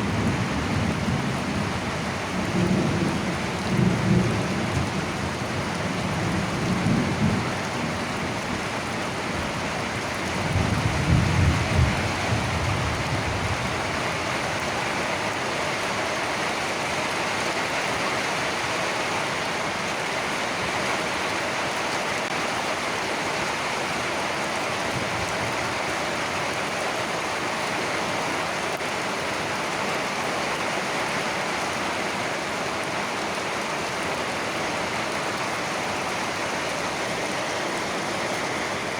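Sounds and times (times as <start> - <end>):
steady rain falling: 0.0 - 38.9
low thunder rumbling: 10.4 - 14.0.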